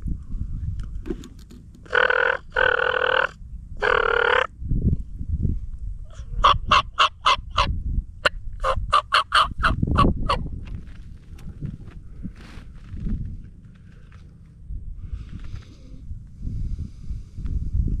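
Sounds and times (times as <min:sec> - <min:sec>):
large birds calling: 0:01.8 - 0:04.5
low rumble: 0:09.8 - 0:18.0.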